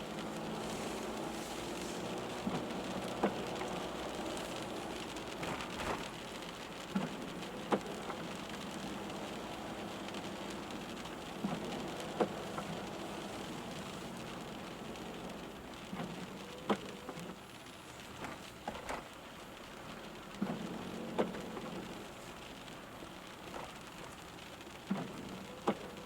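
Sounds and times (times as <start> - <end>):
rain on a moving car: 0.0 - 26.0.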